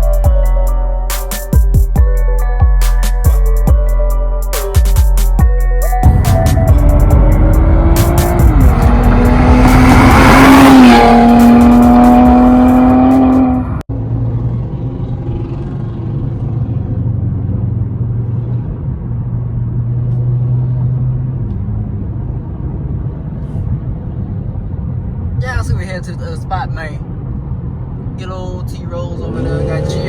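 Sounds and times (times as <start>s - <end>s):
car engine revving: 6.0s - 23.3s, 27.0s - 30.0s.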